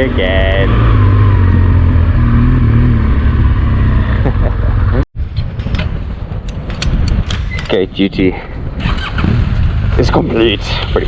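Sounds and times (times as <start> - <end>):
motorcycle engine running: 0.0 - 5.0
wind noise: 5.2 - 11.0
sharp clicks and knocks: 5.3 - 7.8.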